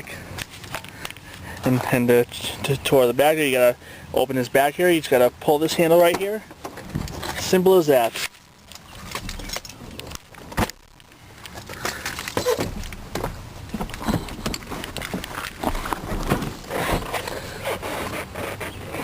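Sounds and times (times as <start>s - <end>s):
handling clicks and knocks: 8.2s - 17.5s.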